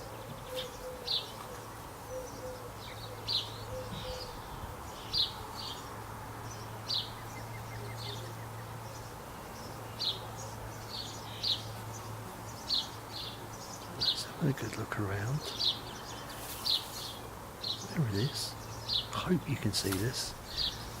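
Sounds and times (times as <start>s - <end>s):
birds chirping: 0.0s - 21.0s
faint low cooing: 0.2s - 4.8s.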